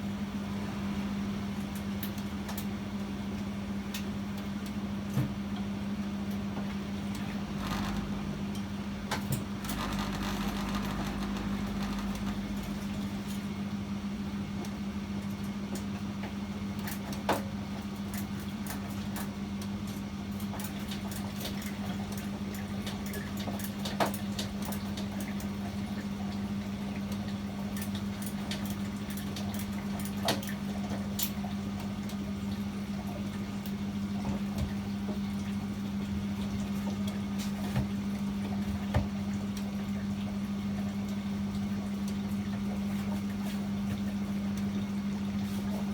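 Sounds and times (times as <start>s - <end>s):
washing machine humming: 0.0s - 45.9s
sharp clicks and knocks: 7.1s - 13.0s.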